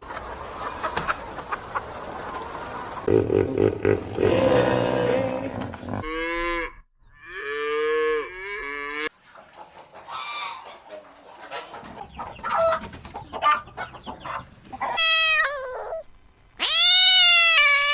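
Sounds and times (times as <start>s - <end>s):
chickens clucking: 0.0s - 4.6s, 9.1s - 15.2s.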